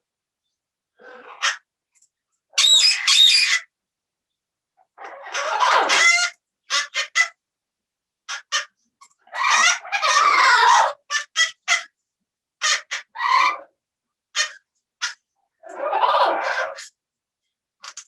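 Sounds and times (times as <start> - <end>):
parrot squawking and chirping: 1.0 - 1.6, 2.5 - 3.7, 5.0 - 7.4, 8.3 - 11.9, 12.6 - 13.7, 14.3 - 16.9.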